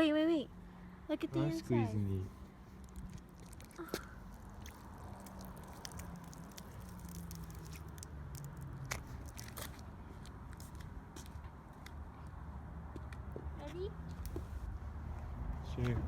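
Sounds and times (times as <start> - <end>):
wet squishing of gel ball: 2.7 - 10.0.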